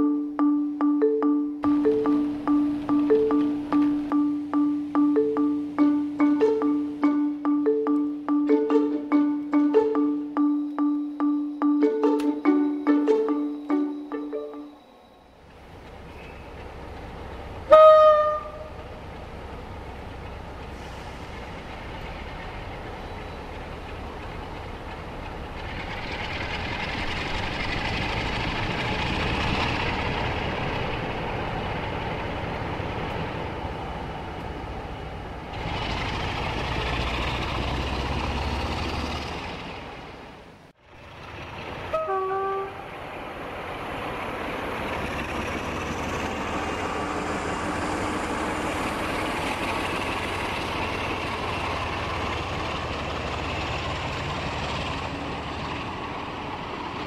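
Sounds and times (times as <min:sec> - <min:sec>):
two-note horn: 0:00.0 - 0:14.8, 0:17.7 - 0:18.7, 0:41.9 - 0:42.8
model locomotive horn: 0:17.7 - 0:18.8, 0:41.9 - 0:42.9
diesel engine revving: 0:18.4 - 0:40.2, 0:43.2 - 0:57.0.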